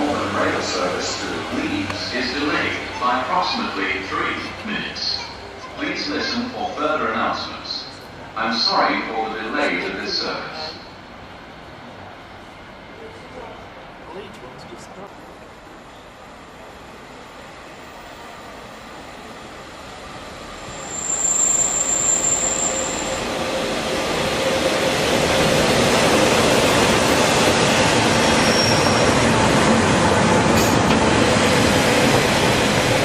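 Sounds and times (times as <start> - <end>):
train wheels rumbling on track: 0.0 - 6.4, 7.4 - 33.0
high train squeal: 20.5 - 23.7, 27.1 - 29.5.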